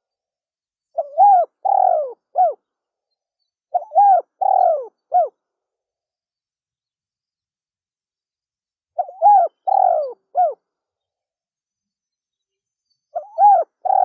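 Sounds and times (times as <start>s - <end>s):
dove cooing: 1.0s - 2.6s, 3.7s - 5.4s, 9.0s - 10.6s, 13.2s - 14.0s.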